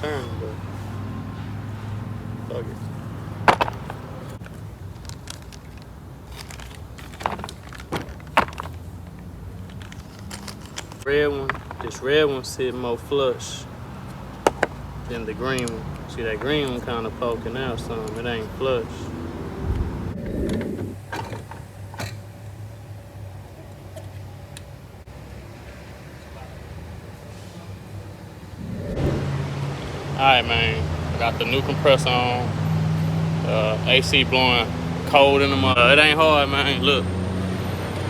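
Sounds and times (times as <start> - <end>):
tools and metal parts rattling: 2.8 - 12.0, 21.0 - 22.3
sharp clicks and knocks: 3.5 - 11.9
steady low hum: 27.9 - 31.6.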